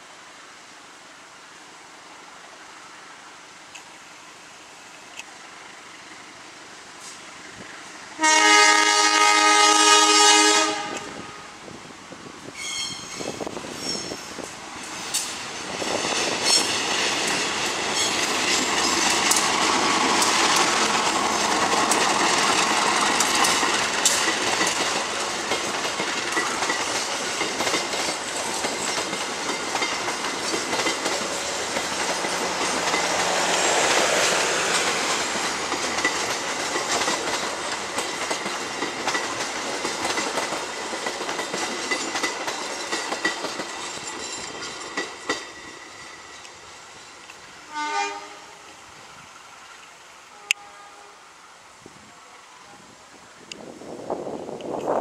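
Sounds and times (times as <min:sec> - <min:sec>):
passenger train rumbling past: 0:00.0 - 0:55.0
locomotive horn blast: 0:08.2 - 0:11.6, 0:47.7 - 0:48.6, 0:50.3 - 0:51.2
wheels clattering over rail joints: 0:12.6 - 0:47.4.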